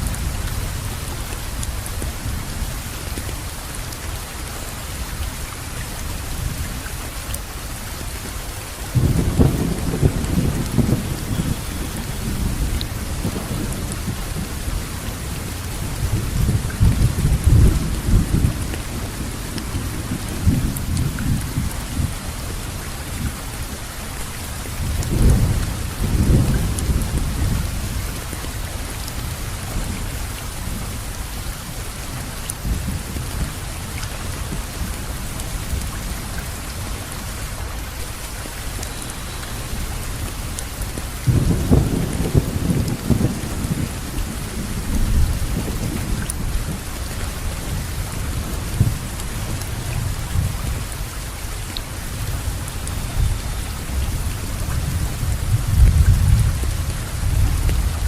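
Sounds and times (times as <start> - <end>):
steady rainfall: 0.0 - 58.0
rolling thunder: 9.0 - 22.2, 41.2 - 50.9.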